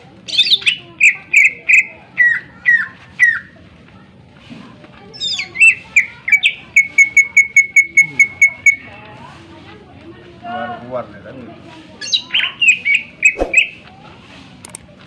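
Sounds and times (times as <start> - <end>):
bird singing: 12.0 - 13.8.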